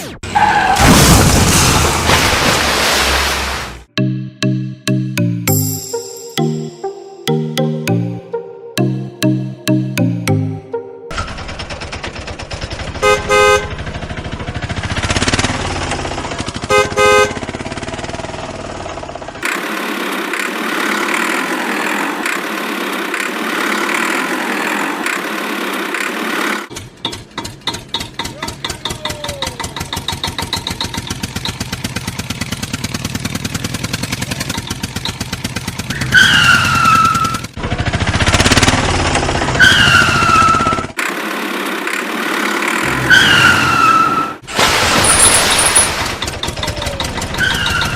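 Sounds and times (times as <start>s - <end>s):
engine putter: 11.1s - 43.6s, 44.4s - 47.9s
cartoon truck horn honks: 13.0s - 14.0s, 16.6s - 17.6s
loud falling squeals: 35.9s - 37.5s, 39.5s - 41.0s, 42.8s - 47.9s.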